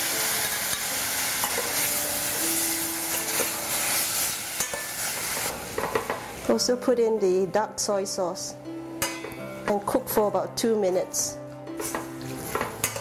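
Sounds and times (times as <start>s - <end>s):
food sizzling in hot oil: 0.0s - 6.8s, 11.8s - 13.0s
metal spatula scraping pan: 11.8s - 13.0s.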